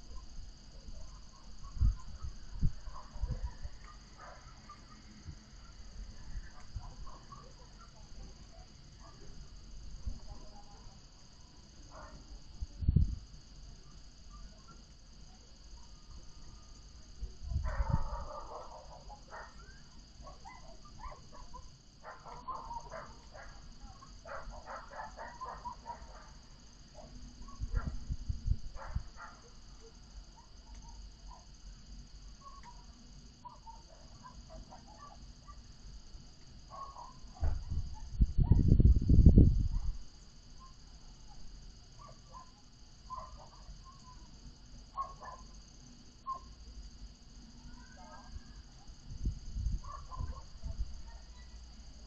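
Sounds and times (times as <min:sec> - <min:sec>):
wind rumble on microphone: 0:00.0 - 0:04.3, 0:11.9 - 0:13.3, 0:17.2 - 0:18.8, 0:27.4 - 0:29.3, 0:37.4 - 0:40.1, 0:48.3 - 0:51.3
faint outdoor hiss: 0:00.0 - 0:52.0
distant animal calls: 0:17.8 - 0:26.4.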